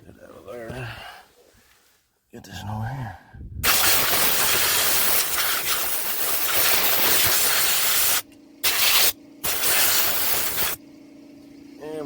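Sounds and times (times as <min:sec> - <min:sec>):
compressed air blow gun hissing: 0:03.6 - 0:10.8.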